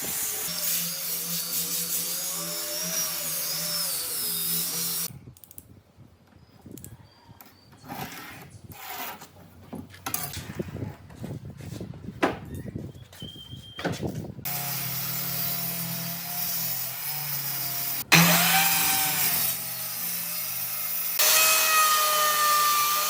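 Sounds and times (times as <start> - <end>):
power tool running: 0.0 - 5.1, 14.5 - 23.0.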